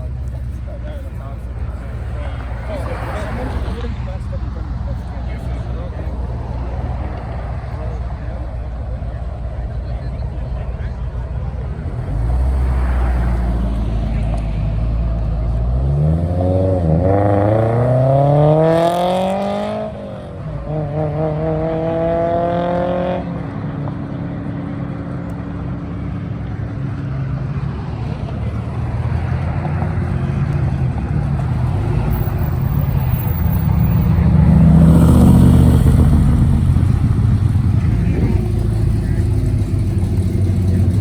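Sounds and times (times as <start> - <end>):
another vehicle engine: 0.0 - 41.0
car accelerating hard: 11.4 - 41.0.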